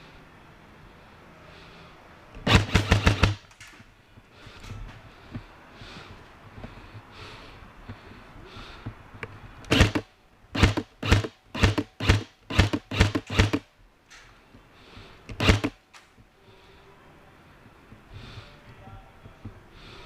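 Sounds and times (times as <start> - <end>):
airsoft gun shots: 2.4 - 3.4, 9.7 - 10.0, 10.6 - 13.6.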